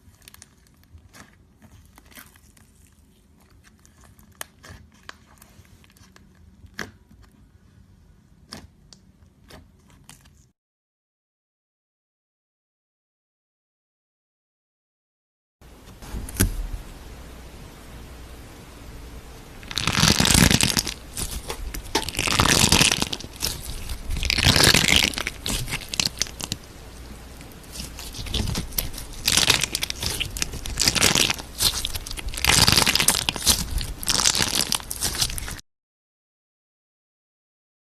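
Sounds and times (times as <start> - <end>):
slime squeezed crackling: 19.6 - 35.6.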